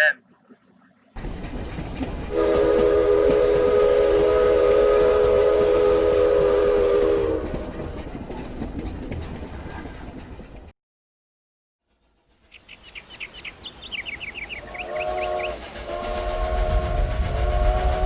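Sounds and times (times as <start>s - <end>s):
train rolling rumble: 0.6s - 10.7s, 11.9s - 18.0s
train whistle chord: 2.3s - 7.8s, 14.7s - 18.0s.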